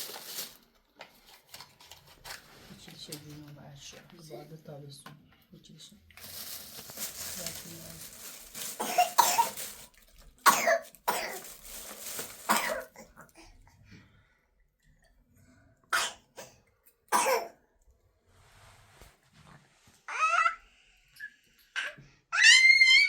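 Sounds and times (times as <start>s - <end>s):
person coughing: 8.8s - 9.6s, 10.5s - 11.5s, 12.5s - 13.2s, 17.2s - 17.6s.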